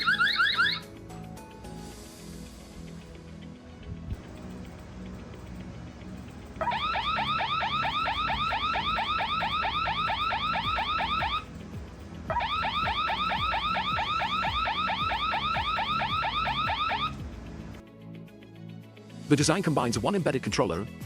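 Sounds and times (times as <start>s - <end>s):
electronic alarm siren whooping: 0.0s - 0.9s, 6.6s - 11.5s, 12.3s - 17.2s.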